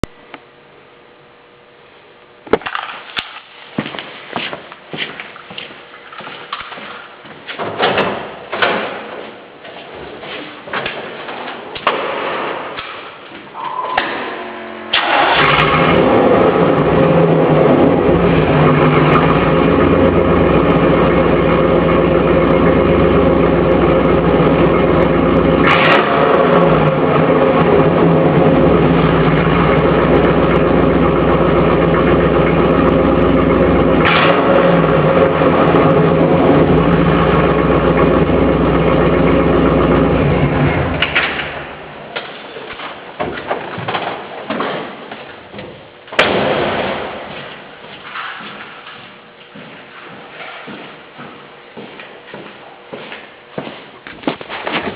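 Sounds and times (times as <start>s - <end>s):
car engine cranking and idling: 14.8s - 42.1s.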